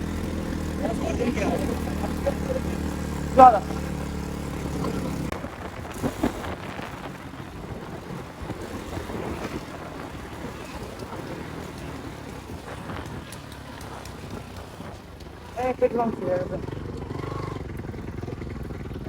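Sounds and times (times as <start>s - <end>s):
motorcycle engine running: 0.0s - 19.0s
wind noise on microphone: 5.3s - 16.6s.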